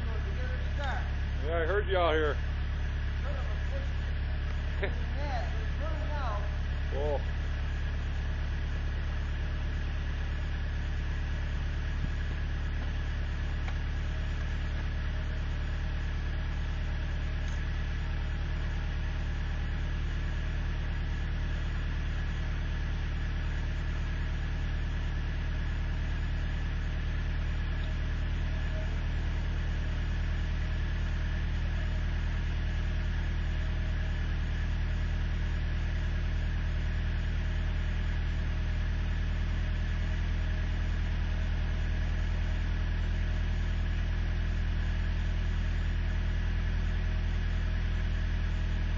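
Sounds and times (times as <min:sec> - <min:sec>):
truck engine idling: 0:00.0 - 0:48.9.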